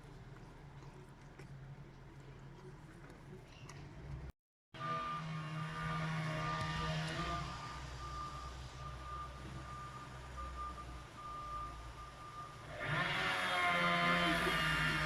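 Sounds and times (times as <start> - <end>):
truck backup alarm beeping: 4.8 - 13.4.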